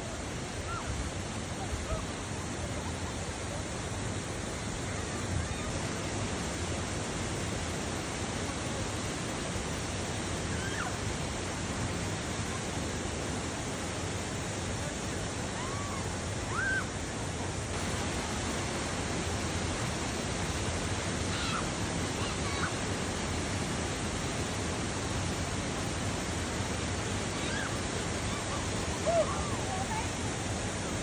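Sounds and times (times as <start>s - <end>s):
water rushing over waterfall: 0.0s - 31.0s
faint short high calls: 15.6s - 16.9s.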